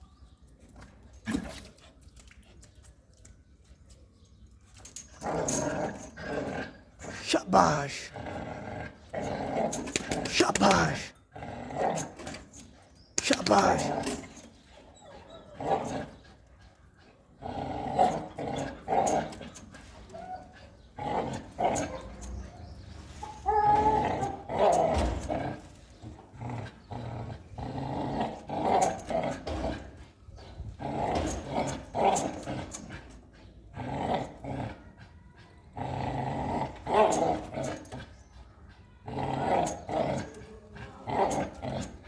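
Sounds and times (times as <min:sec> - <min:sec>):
dog growling: 0:05.2 - 0:12.4, 0:15.2 - 0:22.5, 0:23.6 - 0:42.0.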